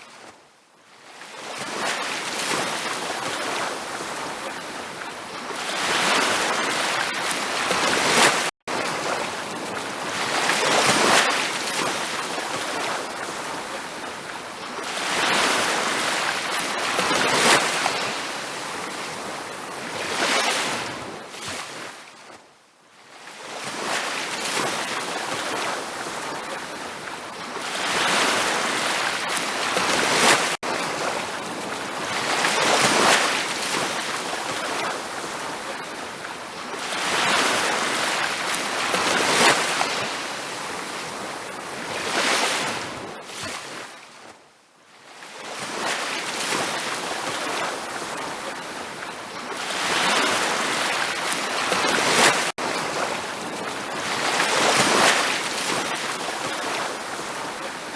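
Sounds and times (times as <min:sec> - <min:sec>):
ocean waves washing onto beach: 0:00.0 - 0:22.4, 0:23.1 - 0:44.4, 0:45.1 - 0:57.9.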